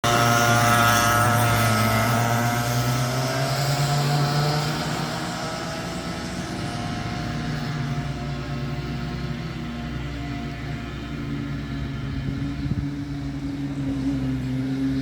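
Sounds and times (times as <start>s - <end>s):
go-kart engine running: 0.0s - 15.0s.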